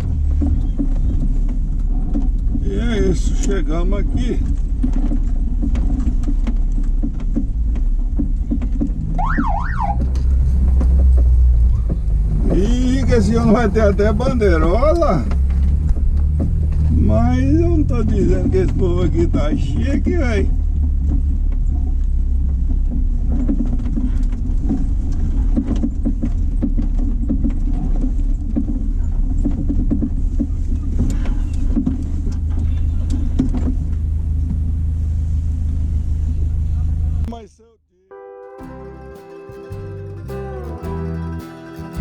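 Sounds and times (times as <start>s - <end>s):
tyres crackling on dirt: 0.0s - 37.3s
car engine and road rumble: 0.0s - 37.4s, 38.6s - 42.0s
small clicks and rattles: 4.2s - 9.2s.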